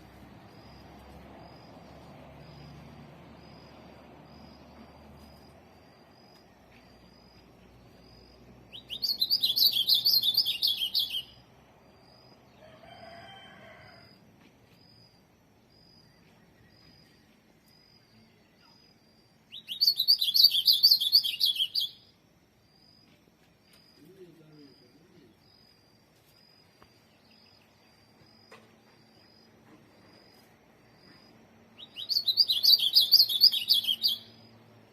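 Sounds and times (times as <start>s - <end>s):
bird warbling song: 8.7s - 11.4s, 19.5s - 22.1s, 31.8s - 34.5s.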